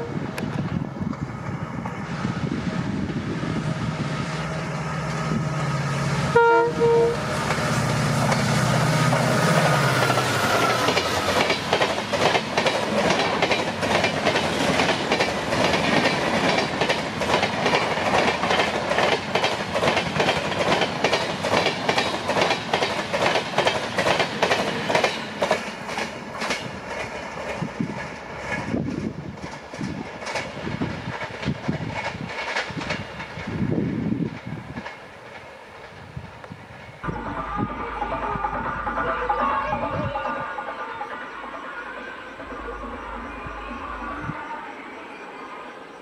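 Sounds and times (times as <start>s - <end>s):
diesel locomotive engine passing: 0.0s - 46.0s
train horn blast: 5.1s - 7.8s
wheels clicking over rail joints: 7.4s - 36.6s.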